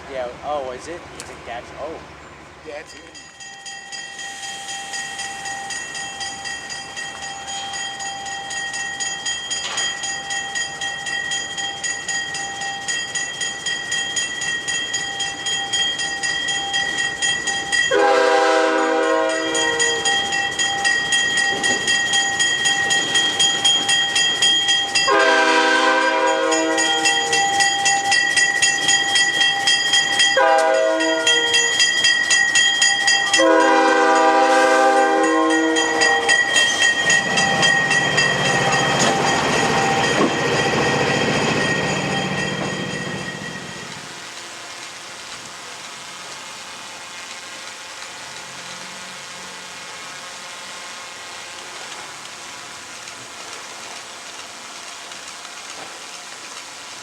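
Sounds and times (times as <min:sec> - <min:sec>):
approaching locomotive: 0:00.0 - 0:57.0
locomotive bell ringing: 0:02.6 - 0:44.0
locomotive horn blasts: 0:17.9 - 0:20.1, 0:25.1 - 0:27.4, 0:30.4 - 0:31.7, 0:33.3 - 0:36.4.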